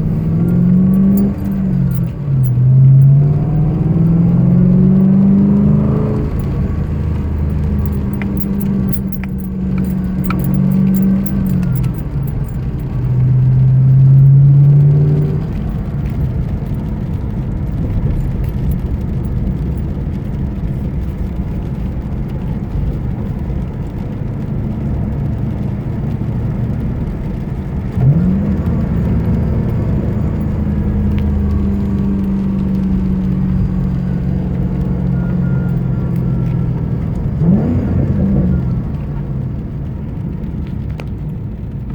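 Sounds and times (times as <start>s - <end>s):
engine accessory whine: 0.0s - 15.8s
car engine running: 0.0s - 41.9s.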